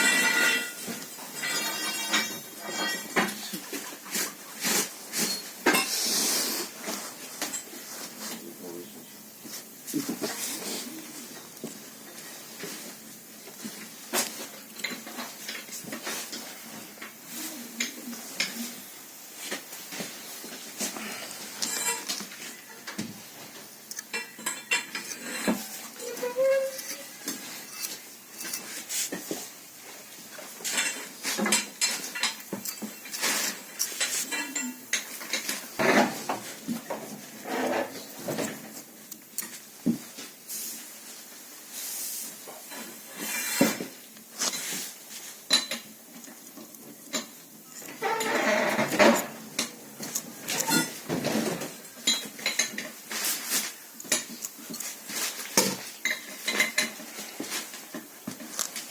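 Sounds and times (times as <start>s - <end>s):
metal tools clinking and scraping: 0.0s - 6.2s, 19.4s - 22.9s, 23.5s - 29.6s, 30.3s - 36.3s, 42.6s - 58.9s.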